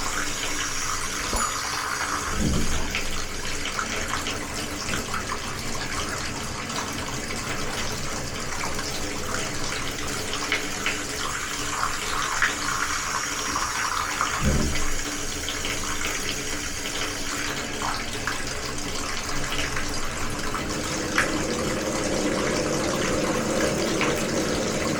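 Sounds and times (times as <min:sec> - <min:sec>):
water running from tap: 0:00.0 - 0:24.9
short knock: 0:14.4 - 0:14.9.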